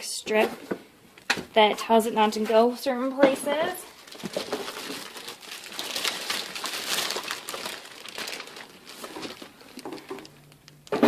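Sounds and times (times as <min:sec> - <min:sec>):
packaging crinkling: 0:03.8 - 0:11.0.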